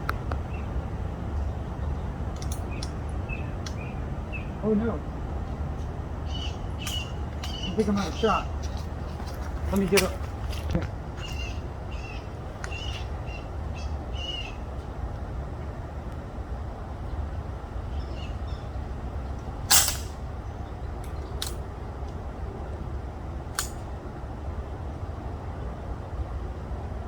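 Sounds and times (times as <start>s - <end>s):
steady low rumble: 0.0s - 27.0s
air rifle shot: 19.7s - 20.2s.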